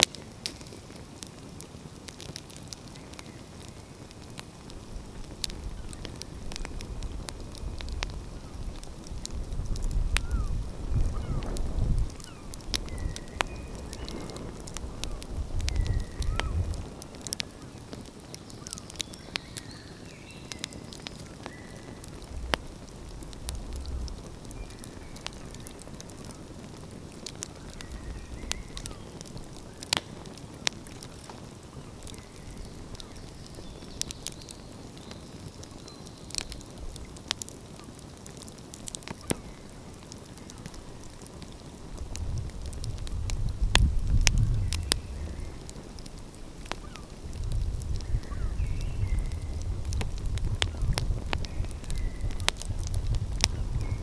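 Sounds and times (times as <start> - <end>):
steady low hiss: 0.0 - 54.0
wood fire crackling and popping: 0.0 - 54.0
low rumble: 22.2 - 25.6.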